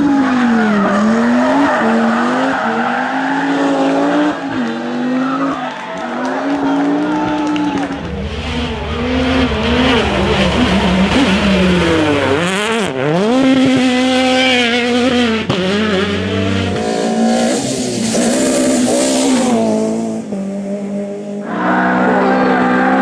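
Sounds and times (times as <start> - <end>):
car running at high revs: 0.0 - 23.0
rally car engine revving: 0.0 - 23.0.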